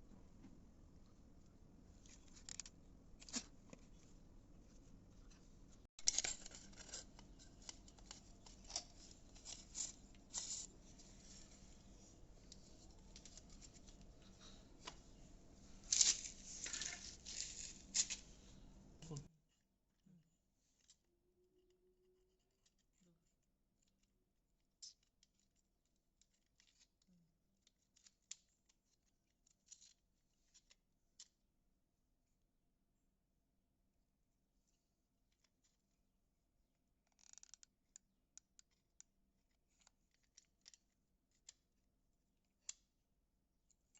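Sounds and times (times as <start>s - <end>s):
scrapes and clicks of materials: 2.0s - 4.1s
faint clicks and scratchy snips: 23.8s - 31.4s, 36.9s - 43.0s.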